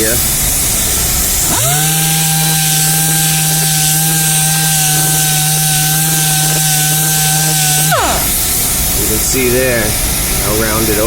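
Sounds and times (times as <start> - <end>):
electric palm sander running: 0.8 - 9.5.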